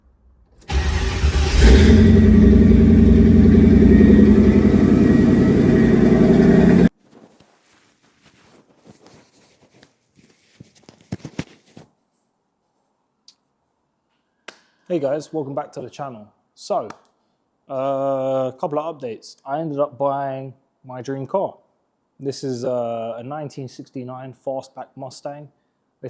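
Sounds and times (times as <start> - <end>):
car engine running loud: 0.6 - 6.9.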